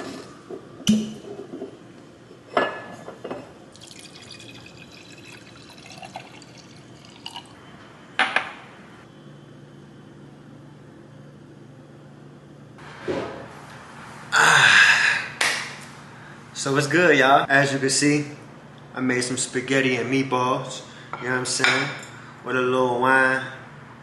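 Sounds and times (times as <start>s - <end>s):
liquid pouring: 3.7s - 7.6s.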